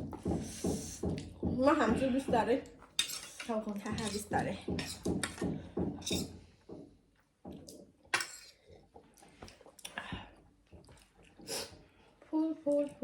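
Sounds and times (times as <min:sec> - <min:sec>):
dishes and utensils clinking: 0:02.9 - 0:06.4.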